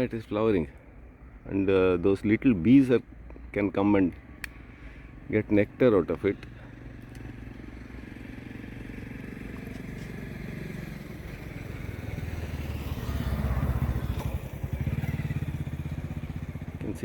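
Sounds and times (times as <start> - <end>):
vehicle engine running: 4.3 - 17.0.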